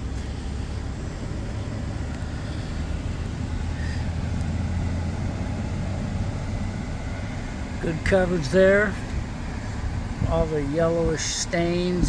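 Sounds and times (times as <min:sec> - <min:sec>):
engine low rumble: 0:00.0 - 0:12.0
faint light ticks: 0:04.3 - 0:04.6.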